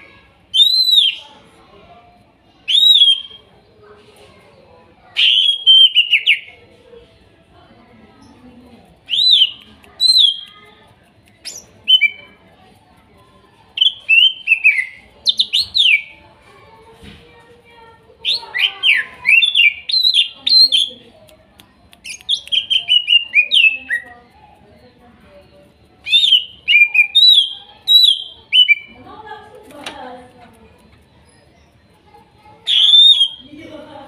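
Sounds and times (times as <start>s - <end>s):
bird whistling rapid notes: 0.5s - 1.2s, 2.7s - 3.4s, 9.1s - 10.4s, 26.0s - 28.9s, 32.7s - 33.4s.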